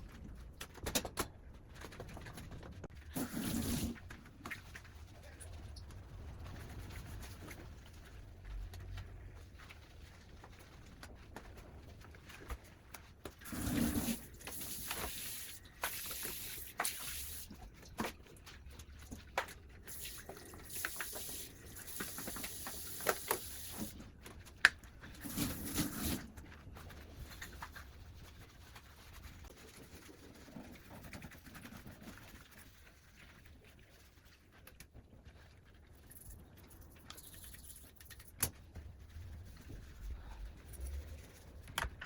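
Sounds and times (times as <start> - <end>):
water running at sink: 3.1 - 4.0, 13.4 - 17.6, 19.9 - 23.9, 25.2 - 26.2.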